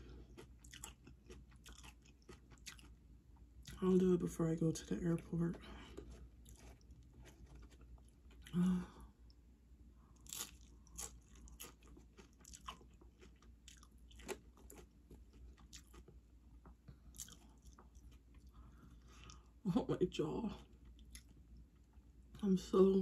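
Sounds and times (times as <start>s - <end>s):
tortilla chips crunching: 0.0s - 3.8s, 5.7s - 8.9s, 10.1s - 19.4s.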